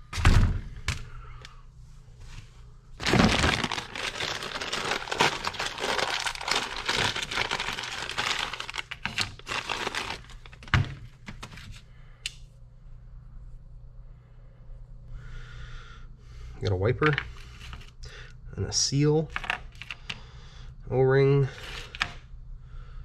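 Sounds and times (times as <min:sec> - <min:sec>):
plastic packaging crinkling: 0:03.0 - 0:11.5.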